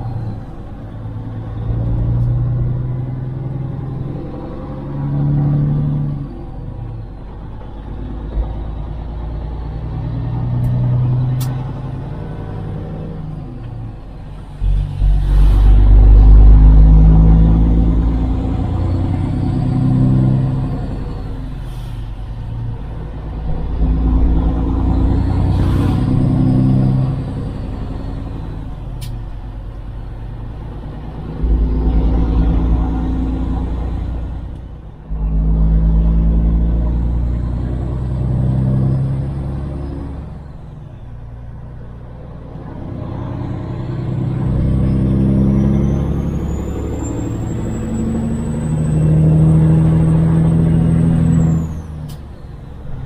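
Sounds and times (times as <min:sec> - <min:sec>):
diesel truck engine revving through gears: 0:00.0 - 0:53.0.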